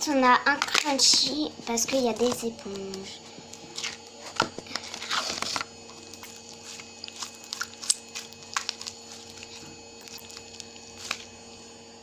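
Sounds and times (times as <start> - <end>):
slime squeezed with crackles: 5.0 - 11.3.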